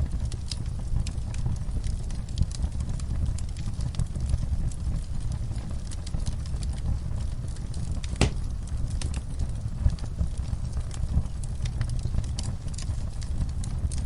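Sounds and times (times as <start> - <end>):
low rumble of flames: 0.0 - 14.0
wood fire crackling: 0.0 - 14.0
fire pops: 0.1 - 14.0.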